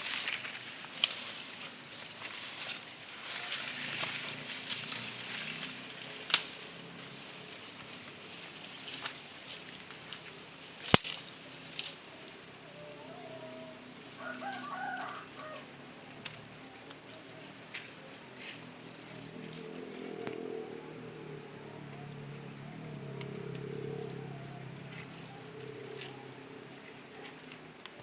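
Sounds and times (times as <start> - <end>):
faint outdoor background: 0.0 - 28.0
rooster crowing faintly: 12.1 - 18.1.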